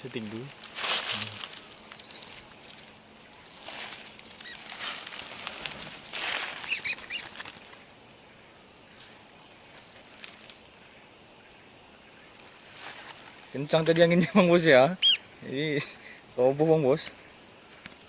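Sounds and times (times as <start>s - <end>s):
wind rushing through leaves: 0.0s - 8.0s
high insect drone: 0.0s - 18.0s
high bird chirps: 1.9s - 2.8s, 6.6s - 7.4s, 15.0s - 15.3s.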